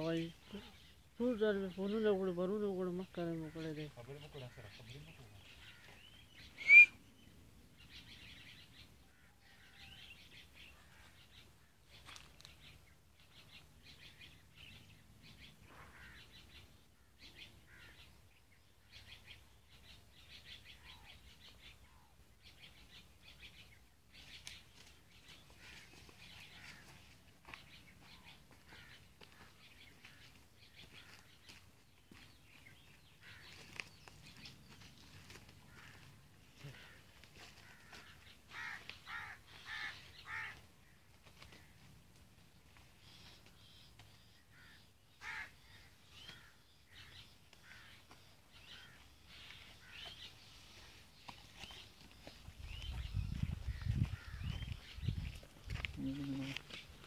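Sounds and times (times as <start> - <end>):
small birds chirping: 0.0 - 57.0
sharp loud bird call: 5.7 - 7.0.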